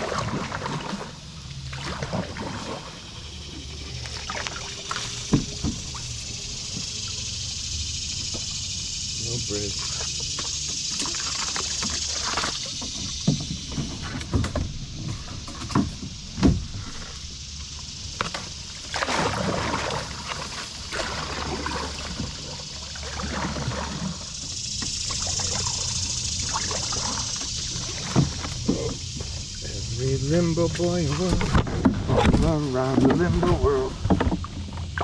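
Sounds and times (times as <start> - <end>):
paddle splashing in water: 0.0 - 8.6, 9.2 - 35.0
steady high hiss: 3.1 - 19.0, 24.1 - 31.5.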